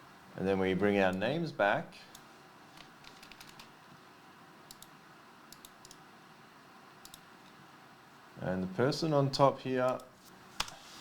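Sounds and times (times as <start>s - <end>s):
computer keyboard clicks: 2.8s - 3.7s, 4.7s - 4.9s, 5.5s - 6.0s, 7.0s - 7.2s.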